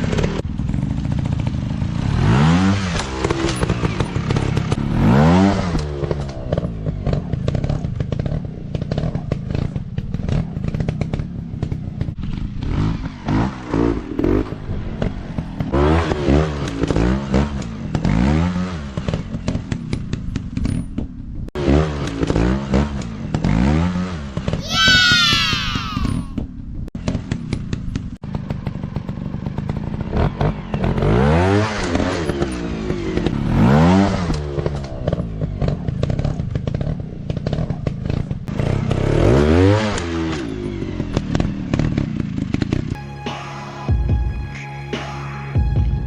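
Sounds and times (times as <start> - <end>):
dirt bike engine revving: 0.0 - 19.8, 21.6 - 26.3, 28.3 - 43.0
bike clattering and knocking: 6.0 - 12.8.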